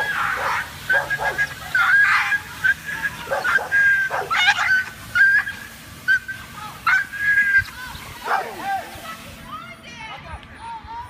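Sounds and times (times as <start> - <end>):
dog barking: 0.0 - 1.5, 3.3 - 4.6, 8.3 - 8.6.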